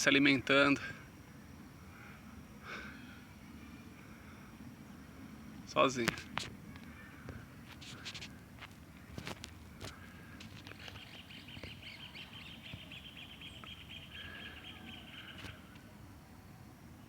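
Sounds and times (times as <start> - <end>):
short lower bird calls: 9.9 - 15.7
bird trilling: 10.8 - 15.5.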